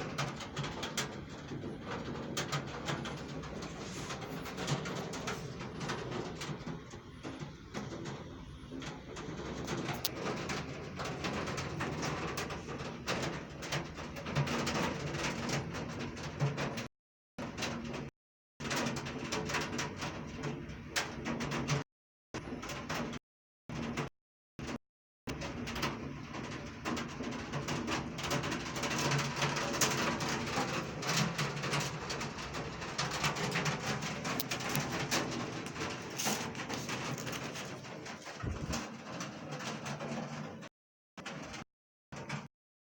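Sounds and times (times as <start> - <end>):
heavy rain falling: 0.0 - 16.4, 25.4 - 40.6
rain drops hitting close by: 0.0 - 16.8, 25.3 - 40.7.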